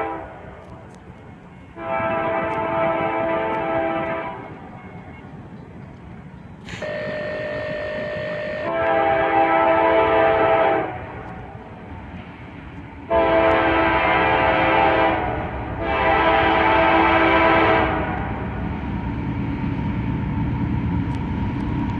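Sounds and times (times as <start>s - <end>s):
locomotive air horn blasts: 0.0s - 5.2s, 6.7s - 11.7s, 13.0s - 18.5s
train rumbling: 0.0s - 21.9s.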